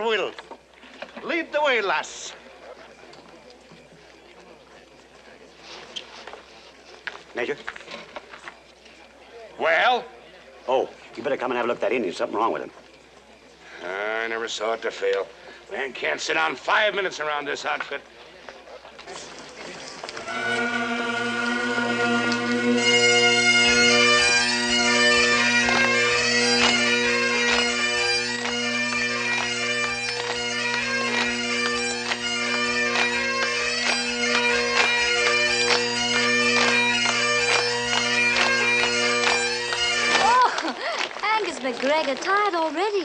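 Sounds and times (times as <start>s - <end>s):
bagpipe drones: 20.0s - 40.3s
bagpipe chanter melody: 20.1s - 40.3s.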